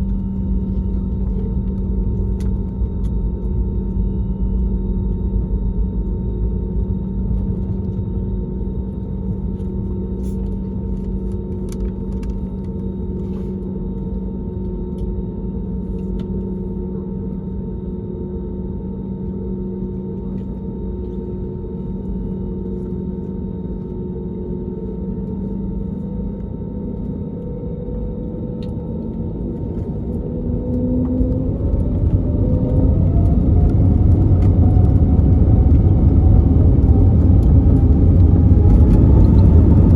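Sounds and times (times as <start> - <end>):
airplane cabin rumble and hum: 0.0 - 39.9.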